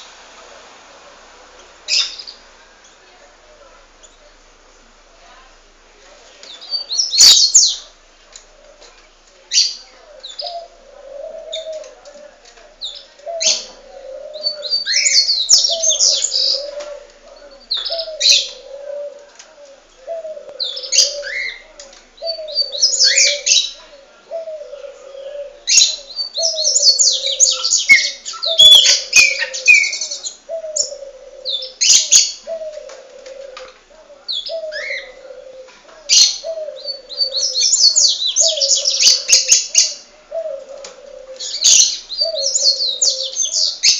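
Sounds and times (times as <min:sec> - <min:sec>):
pet birds twittering: 0:12.8 - 0:18.7, 0:20.0 - 0:32.8, 0:34.2 - 0:40.6, 0:41.4 - 0:43.9.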